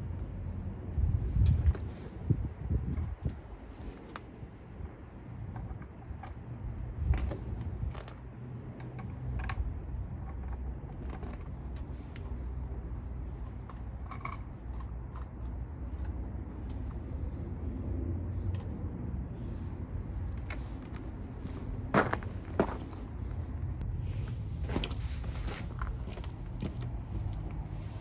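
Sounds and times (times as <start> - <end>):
steady low hum: 12.2 - 28.0.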